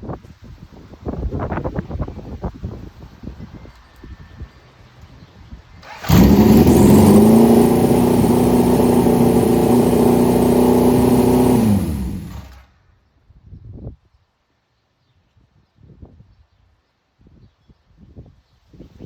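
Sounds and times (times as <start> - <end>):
motorcycle engine revving: 5.8 - 12.6.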